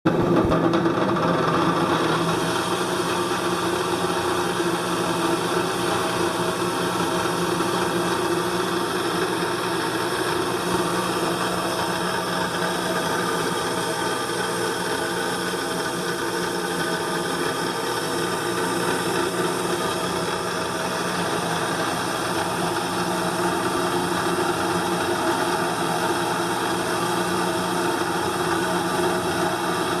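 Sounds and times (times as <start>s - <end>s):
bench grinder running: 0.1s - 30.0s.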